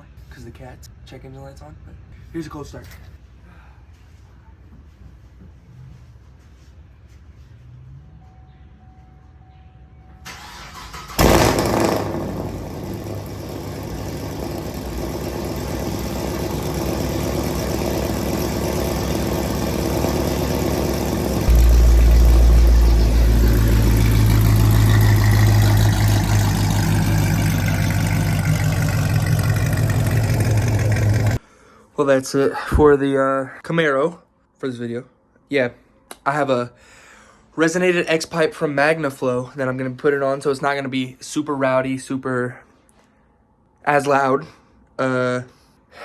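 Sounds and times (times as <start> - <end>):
starter motor cranking: 10.3 - 31.4
car engine idling: 10.4 - 31.4
deep low engine drone: 11.2 - 31.4.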